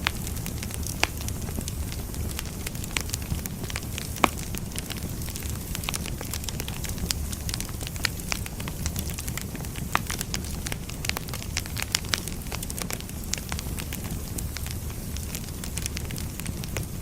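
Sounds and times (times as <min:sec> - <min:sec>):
firewood crackling and popping: 0:00.0 - 0:17.0
low rumble of flames: 0:00.0 - 0:17.0.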